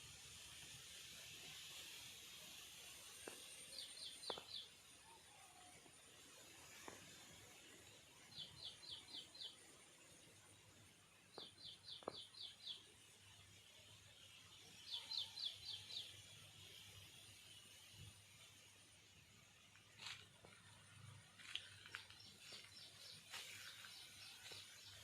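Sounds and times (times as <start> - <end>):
bird chirping: 3.5 - 4.8, 8.2 - 10.0, 11.3 - 13.0, 14.5 - 16.7, 21.5 - 25.0.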